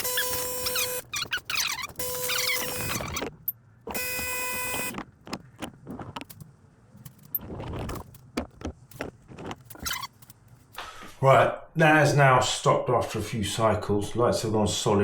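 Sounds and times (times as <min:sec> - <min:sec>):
clicks and knocks: 0:01.2 - 0:10.4.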